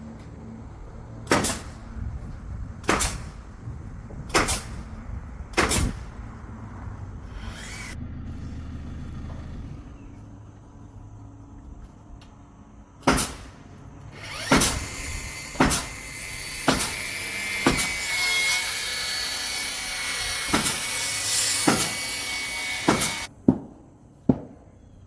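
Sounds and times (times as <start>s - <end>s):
hammer driving nails into wood: 1.3s - 1.7s, 2.8s - 3.2s, 13.0s - 13.4s, 14.4s - 14.8s, 15.5s - 15.9s, 16.6s - 17.0s, 17.6s - 18.0s, 20.5s - 20.8s, 21.6s - 22.0s, 22.8s - 23.6s.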